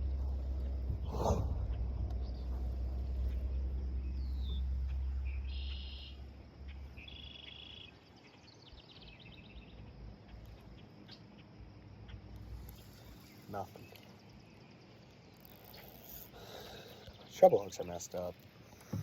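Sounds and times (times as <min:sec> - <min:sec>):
low rumble: 0:00.0 - 0:07.8
birds calling: 0:00.0 - 0:19.0.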